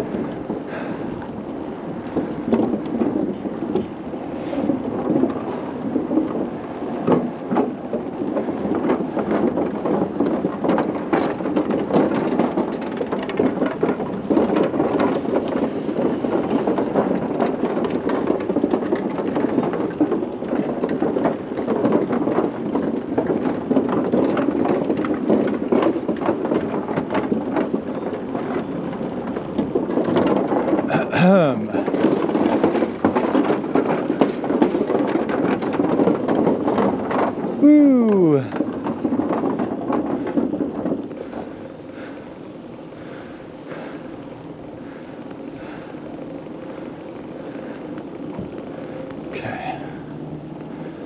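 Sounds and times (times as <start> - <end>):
bicycle tyres rattling over bridge: 0.0 - 51.0.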